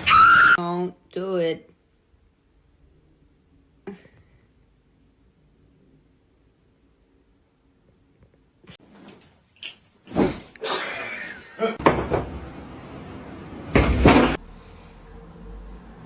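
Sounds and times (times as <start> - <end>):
knocks and bangs: 11.8 - 12.6.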